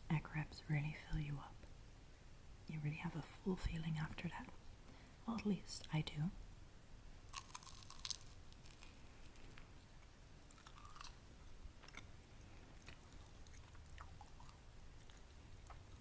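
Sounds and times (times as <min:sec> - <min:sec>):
crunchy chewing: 0:07.3 - 0:16.0.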